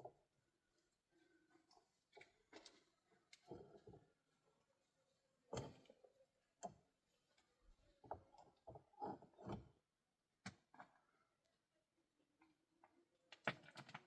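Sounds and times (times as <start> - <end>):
faint knocks and taps: 8.0 - 9.8.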